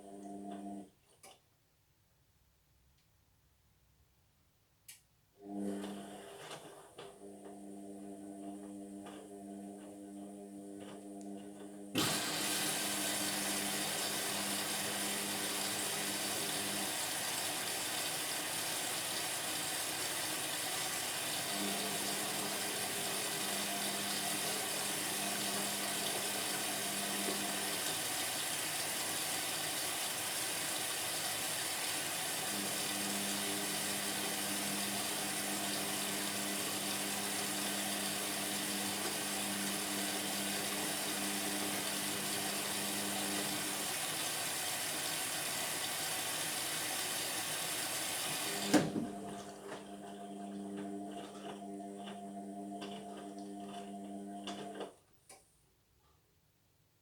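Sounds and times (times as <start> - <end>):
water rushing into washing machine: 11.9 - 54.9.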